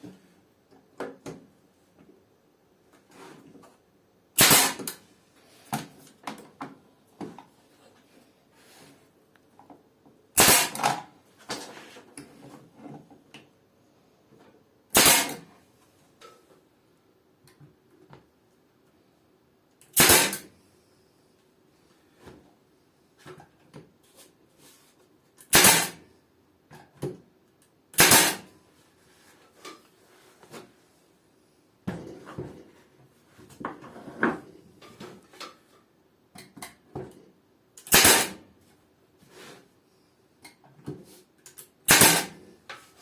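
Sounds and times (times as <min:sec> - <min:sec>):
nail gun firing into wood: 0:04.4 - 0:05.0, 0:10.4 - 0:11.1, 0:14.9 - 0:15.5, 0:19.9 - 0:20.5, 0:25.5 - 0:26.0, 0:28.0 - 0:28.5, 0:37.8 - 0:38.4, 0:41.9 - 0:42.4.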